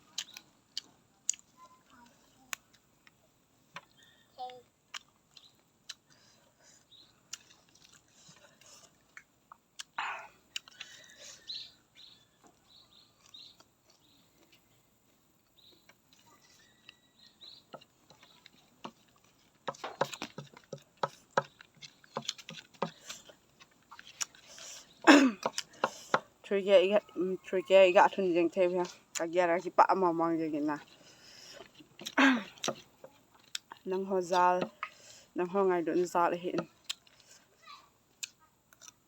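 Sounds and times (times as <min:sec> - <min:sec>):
chewing crunchy vegetables: 0:00.0 - 0:03.2, 0:03.9 - 0:27.5, 0:28.2 - 0:39.0.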